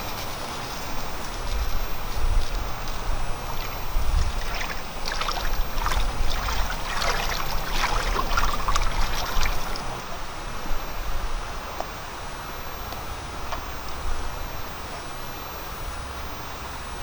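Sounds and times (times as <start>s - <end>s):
steady low rumble: 0.0s - 15.6s
water trickling and splashing: 0.6s - 11.0s.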